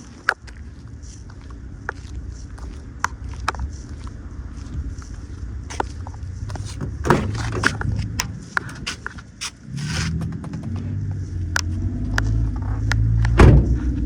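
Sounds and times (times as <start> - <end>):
footsteps: 0.0 - 11.0
low rumble: 0.5 - 14.0
clicks and scrapes: 6.5 - 10.9.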